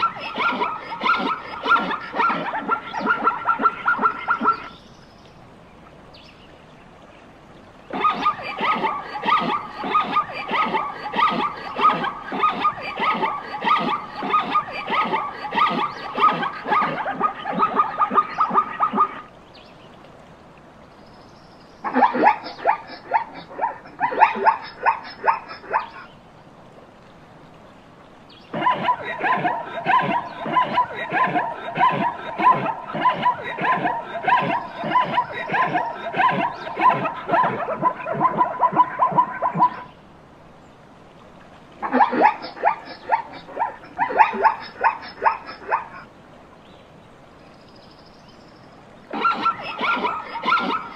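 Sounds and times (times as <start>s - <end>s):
zebra yelping barks: 0.0s - 4.7s, 7.9s - 19.2s, 21.8s - 26.0s, 28.5s - 39.9s, 41.8s - 46.0s, 49.1s - 50.9s.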